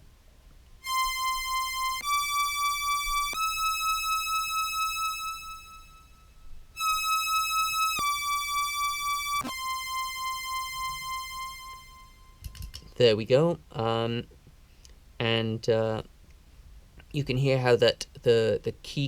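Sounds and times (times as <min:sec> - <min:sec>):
synth tone held notes: 0:00.8 - 0:12.4.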